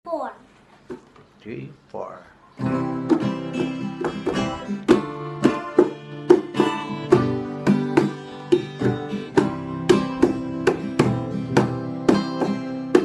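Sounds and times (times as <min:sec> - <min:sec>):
plucked string instrument folk music: 0:02.6 - 0:13.0.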